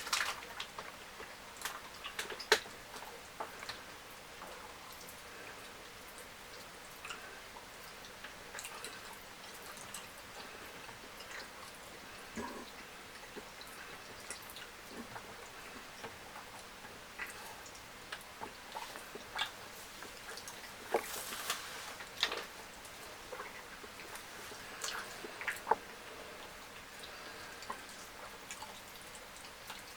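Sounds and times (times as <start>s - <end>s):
person chewing food: 8.5s - 29.8s.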